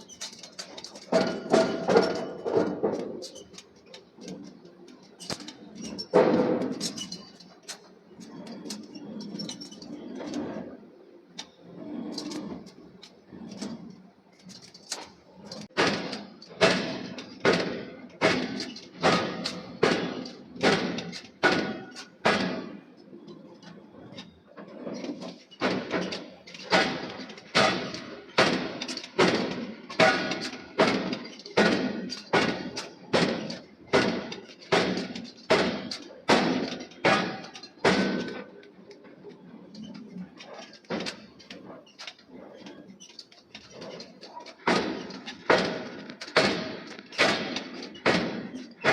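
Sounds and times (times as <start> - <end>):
hammer striking steel: 26.7 - 38.3.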